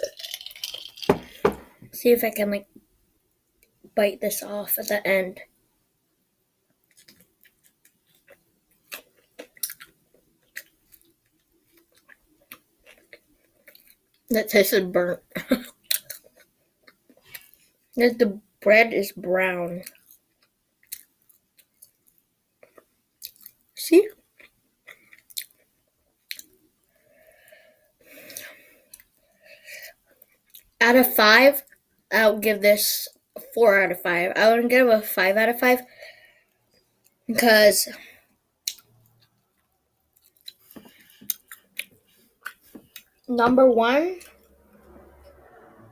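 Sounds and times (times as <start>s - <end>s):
chewing crunchy food: 0.0s - 1.8s, 6.8s - 14.3s, 19.8s - 27.5s, 29.9s - 30.8s, 38.6s - 43.3s.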